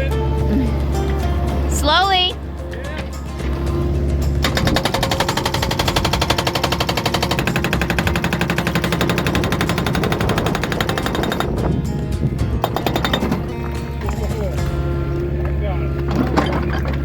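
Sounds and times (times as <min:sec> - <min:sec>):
excavator engine: 0:00.0 - 0:17.0
hydraulic breaker hammering rock: 0:03.4 - 0:15.0, 0:16.0 - 0:17.0.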